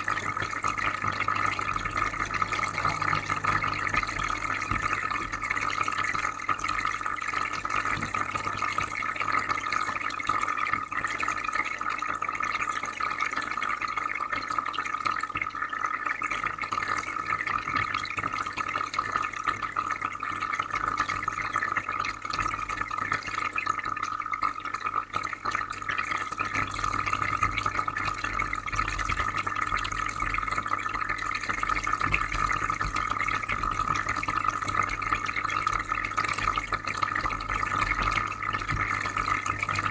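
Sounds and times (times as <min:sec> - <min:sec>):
low even hum: 0:00.0 - 0:06.4
aquarium filter bubbling: 0:00.0 - 0:39.9.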